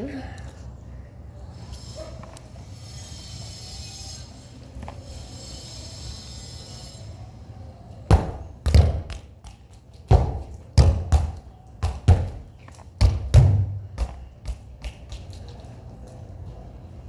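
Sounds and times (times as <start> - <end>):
football thumps: 8.1 - 15.2.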